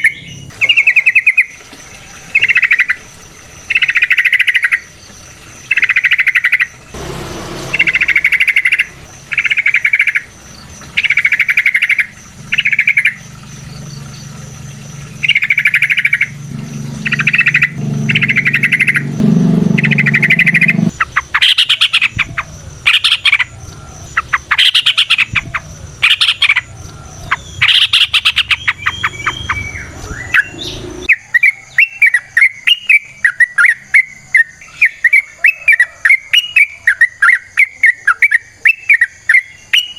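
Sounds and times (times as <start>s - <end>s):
bulbul singing: 0.0s - 39.9s
low hum: 6.7s - 31.1s.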